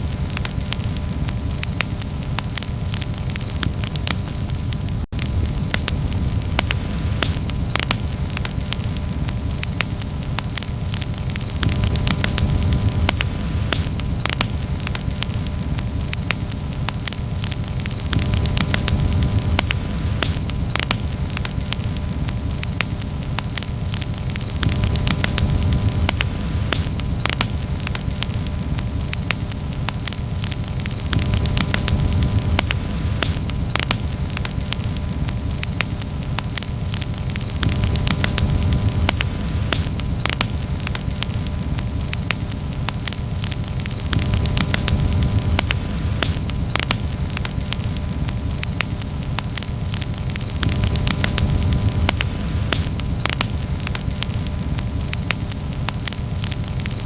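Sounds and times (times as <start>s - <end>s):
steady low rush: 0.0s - 48.6s
campfire crackling and popping: 0.0s - 57.0s.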